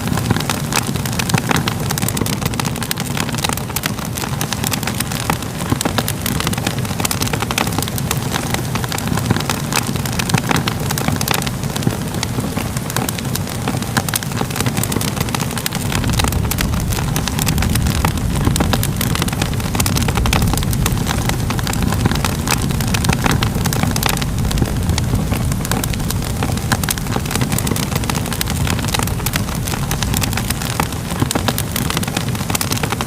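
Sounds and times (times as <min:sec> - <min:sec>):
fire crackling and popping: 0:00.0 - 0:33.0.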